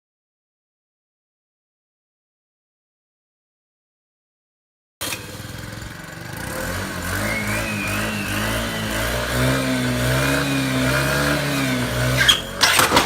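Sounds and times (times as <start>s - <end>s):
engine running: 5.0s - 13.0s.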